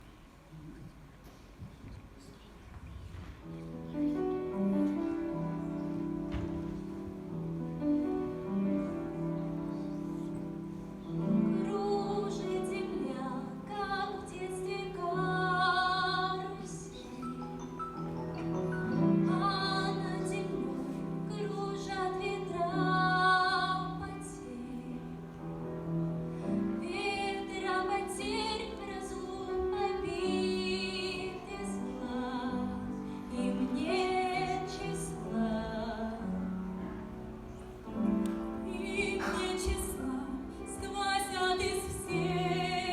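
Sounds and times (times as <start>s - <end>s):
instrumental accompaniment: 3.4s - 23.0s
woman singing operatically: 38.7s - 42.9s.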